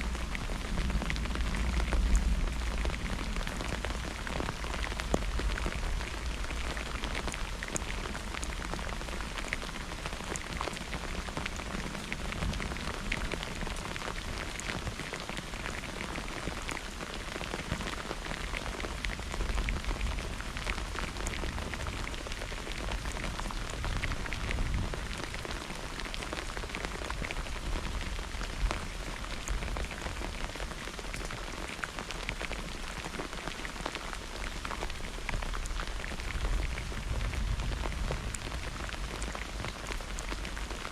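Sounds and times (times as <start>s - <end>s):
low rumble: 0.0s - 6.7s
rain on hard surface: 0.0s - 40.9s.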